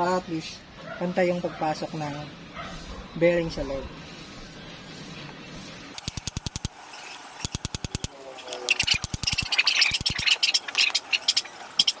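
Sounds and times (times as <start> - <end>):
hammer tapping on metal: 7.4 - 8.1.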